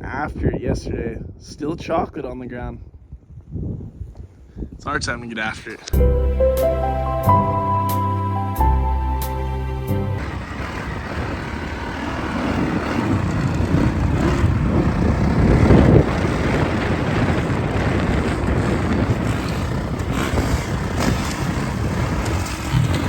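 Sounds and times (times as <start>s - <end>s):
dirt bike engines: 8.8s - 23.0s.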